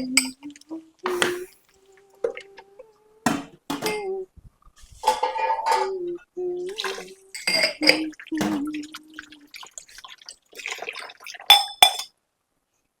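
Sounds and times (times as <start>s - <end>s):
dishes and glassware clinking: 5.0s - 6.0s, 6.8s - 8.9s, 10.6s - 12.1s.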